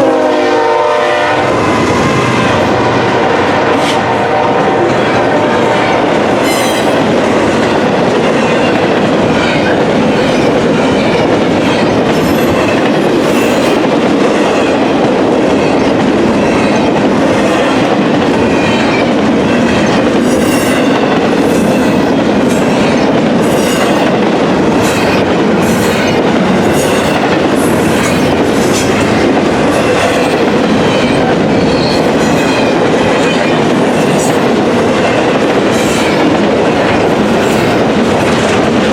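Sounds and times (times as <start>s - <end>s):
train horn blast: 0.0s - 6.9s
train wheels clickety-clack: 0.0s - 38.9s.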